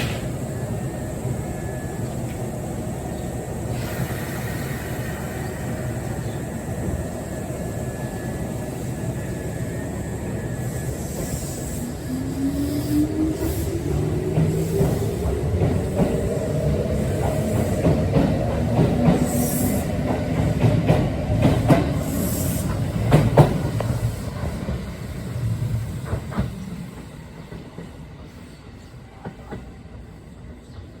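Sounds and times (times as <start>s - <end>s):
train wheels clacking over rail joints: 0.0s - 0.4s.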